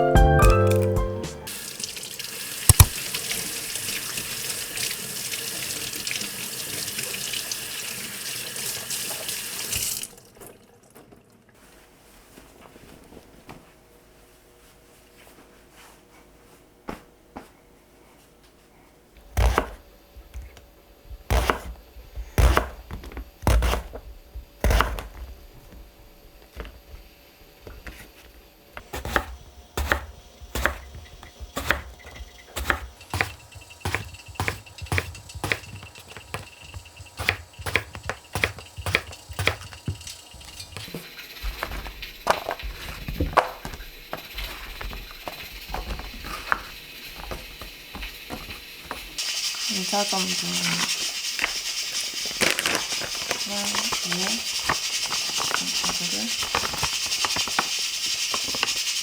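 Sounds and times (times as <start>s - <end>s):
knife chopping on cutting board: 2.7s - 3.0s, 19.3s - 20.6s, 21.2s - 25.9s, 28.8s - 49.1s
steady hiss: 43.9s - 59.0s.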